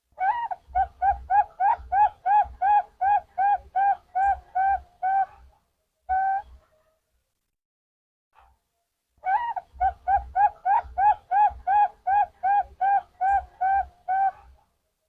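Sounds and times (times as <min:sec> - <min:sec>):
dove cooing: 0:00.2 - 0:05.5, 0:09.3 - 0:14.6.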